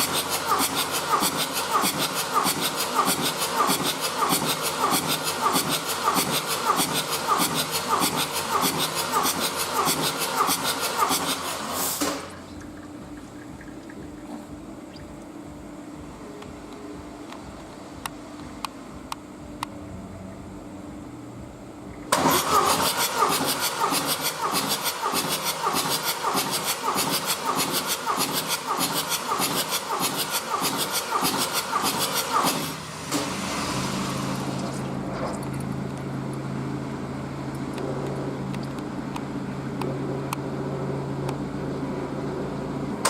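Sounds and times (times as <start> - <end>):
diesel engine cranking: 0.0 - 14.4, 22.1 - 36.6
diesel engine idling: 0.0 - 14.9, 19.6 - 43.0.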